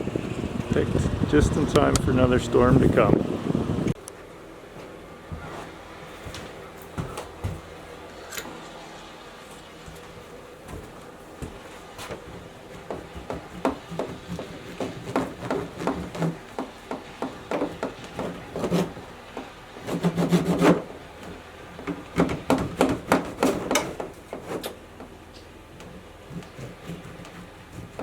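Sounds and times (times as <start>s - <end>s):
objects knocking and scraping: 10.0s - 28.0s
rubbing: 10.1s - 28.0s.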